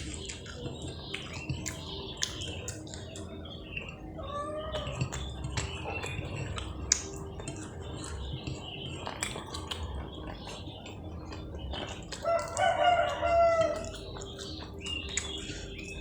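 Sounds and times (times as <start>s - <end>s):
eating clicks and smacks: 0.0s - 16.0s
rooster crowing: 12.2s - 14.0s.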